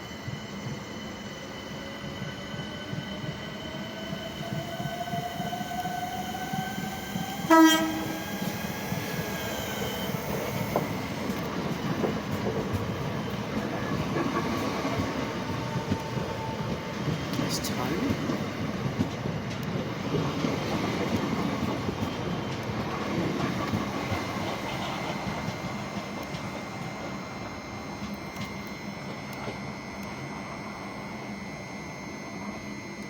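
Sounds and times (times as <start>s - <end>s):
electric train motors whining: 0.0s - 33.0s
train horn blast: 7.5s - 8.5s.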